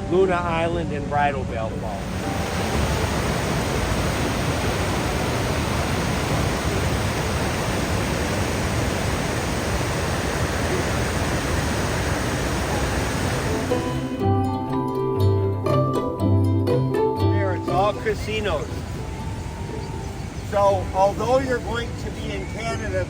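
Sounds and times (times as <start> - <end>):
fast river water rushing: 1.1 - 14.2, 17.5 - 23.0.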